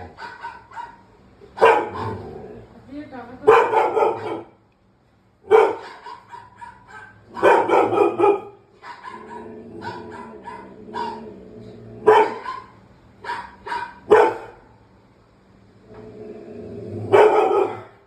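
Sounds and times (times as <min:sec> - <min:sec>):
dog barking: 0:00.0 - 0:02.2, 0:03.4 - 0:04.6, 0:05.5 - 0:11.2, 0:12.0 - 0:14.7, 0:17.1 - 0:18.0.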